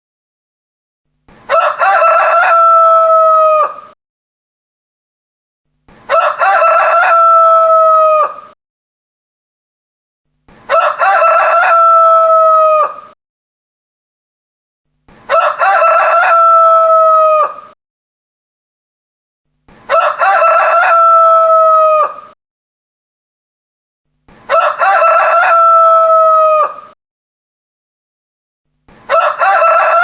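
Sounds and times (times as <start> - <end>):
rooster crowing: 1.5 - 4.0, 6.1 - 8.6, 10.7 - 13.2, 15.3 - 17.8, 19.9 - 22.4, 24.5 - 27.0, 29.1 - 30.0.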